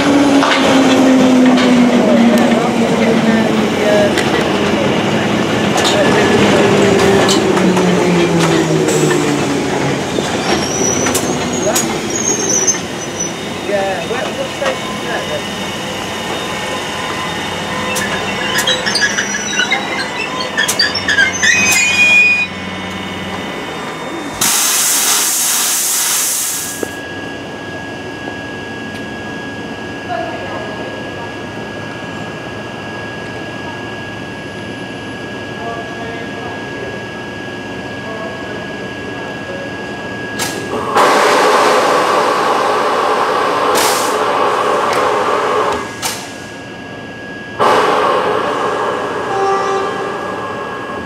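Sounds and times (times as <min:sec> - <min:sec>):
train high whine: 0:00.0 - 0:51.0
train brake squeal: 0:10.4 - 0:13.4, 0:16.0 - 0:22.7, 0:49.3 - 0:50.8.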